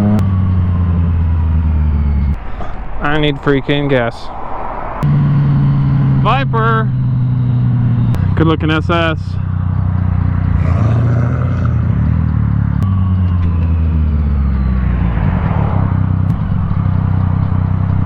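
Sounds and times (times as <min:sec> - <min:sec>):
wind and road noise: 0:00.0 - 0:18.0
motorcycle engine running: 0:05.0 - 0:18.0.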